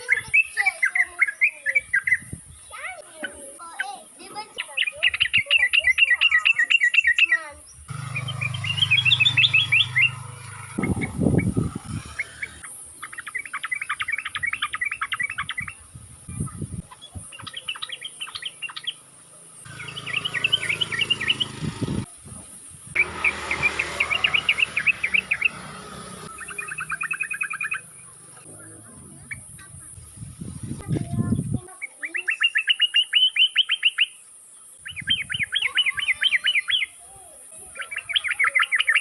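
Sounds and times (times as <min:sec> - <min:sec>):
bird chattering song: 0:00.0 - 0:22.0, 0:23.0 - 0:30.2, 0:31.2 - 0:37.0, 0:37.6 - 0:39.0
low thumps: 0:07.9 - 0:12.6.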